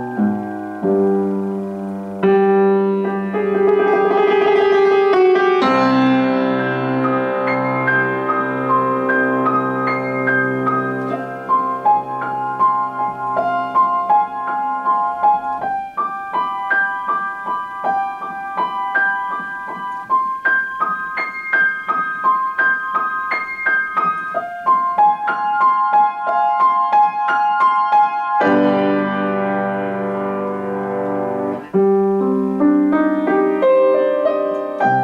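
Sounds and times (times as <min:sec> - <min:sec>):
solo piano piece: 0:00.0 - 0:35.0.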